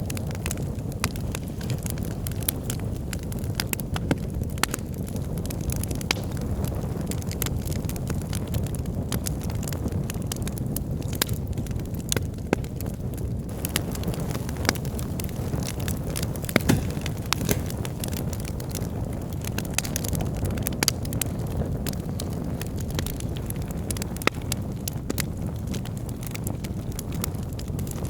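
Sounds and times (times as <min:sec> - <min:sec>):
low rush of flames: 0:00.0 - 0:28.0
wood fire crackling and popping: 0:00.0 - 0:28.0.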